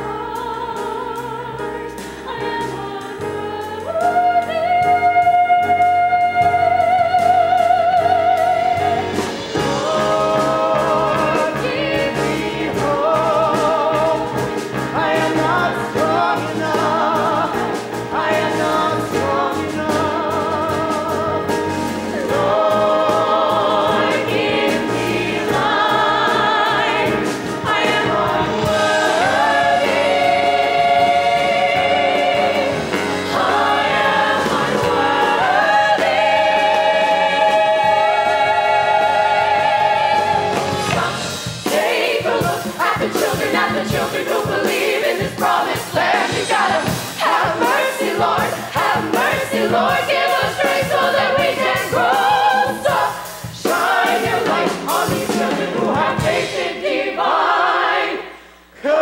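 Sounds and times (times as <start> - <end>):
ensemble of voices singing: 0.0 - 59.0
musical accompaniment: 0.0 - 59.0.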